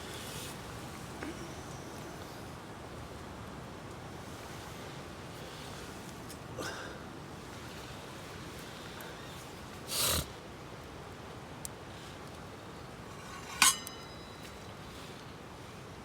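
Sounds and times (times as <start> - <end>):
faint steady hiss: 0.0 - 16.0
metallic clink with ring: 13.2 - 14.8.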